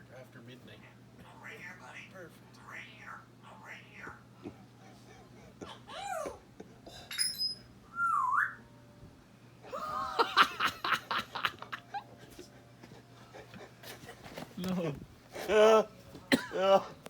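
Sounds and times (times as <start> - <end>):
parrot whistling: 7.4 - 8.7.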